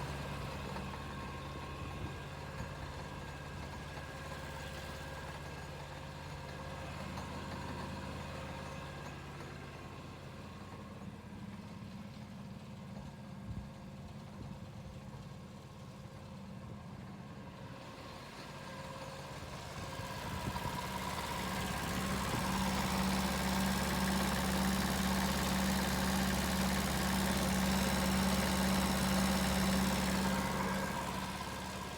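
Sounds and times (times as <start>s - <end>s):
diesel engine running: 18.0s - 31.9s.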